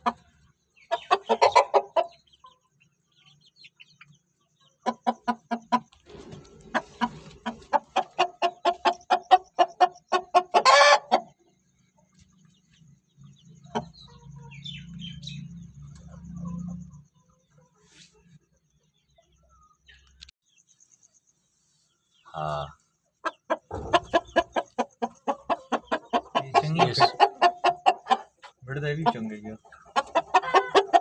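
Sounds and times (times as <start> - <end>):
chicken clucking: 0.0 - 20.3, 21.9 - 31.0
chicken squawk: 0.9 - 2.2, 6.4 - 11.3, 23.5 - 28.5, 29.8 - 31.0.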